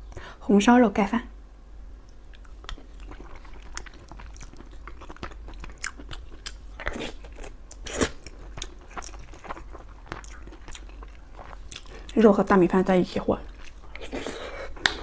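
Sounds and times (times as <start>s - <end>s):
person chewing food: 2.1s - 12.2s, 13.4s - 15.0s.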